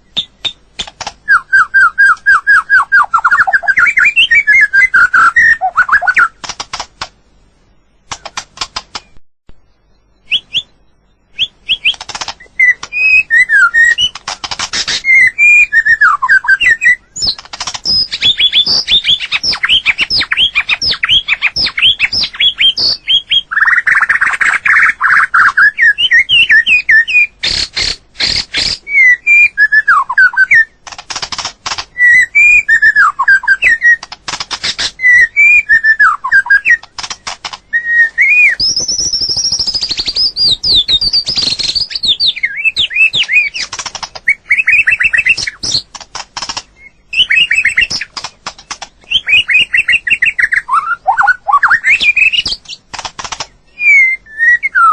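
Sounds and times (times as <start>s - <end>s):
bird trills: 0.0s - 6.4s, 10.0s - 30.8s, 31.9s - 45.9s, 46.5s - 54.9s
bird singing whistled phrases: 1.2s - 6.4s, 9.9s - 14.2s, 14.9s - 27.4s, 28.6s - 30.8s, 31.9s - 34.0s, 35.0s - 36.8s, 37.6s - 43.6s, 44.3s - 45.8s, 46.8s - 48.1s, 49.1s - 52.6s, 53.7s - 54.9s
bird clicking notes: 5.2s - 7.2s, 8.1s - 9.2s, 11.7s - 15.2s, 36.6s - 37.7s, 51.1s - 53.6s.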